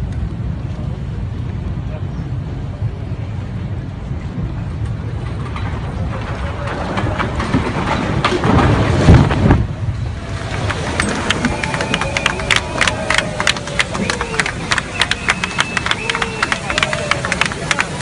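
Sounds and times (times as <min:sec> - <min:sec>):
train rumbling past: 0:01.7 - 0:18.0.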